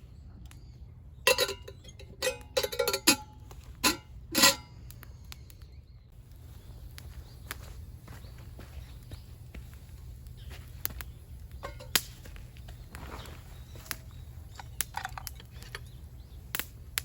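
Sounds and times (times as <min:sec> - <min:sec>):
metal cookware clinking: 0:01.2 - 0:04.8, 0:11.6 - 0:12.0, 0:14.5 - 0:15.8.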